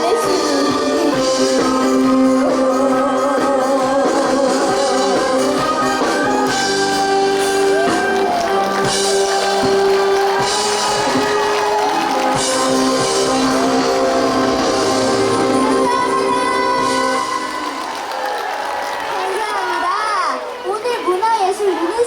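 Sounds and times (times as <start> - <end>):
girl singing: 0.0 - 5.6, 15.5 - 17.6
instrumental accompaniment: 0.0 - 19.1.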